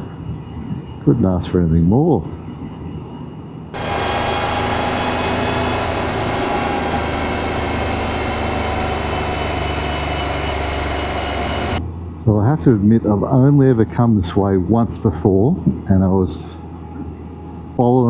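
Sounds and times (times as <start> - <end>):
road and wind rush: 3.5 - 12.2
motorcycle engine running: 3.8 - 11.8.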